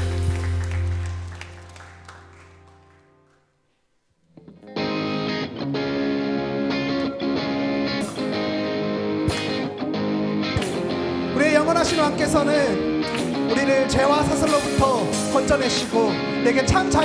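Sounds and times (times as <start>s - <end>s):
strummed guitar: 4.4s - 17.0s.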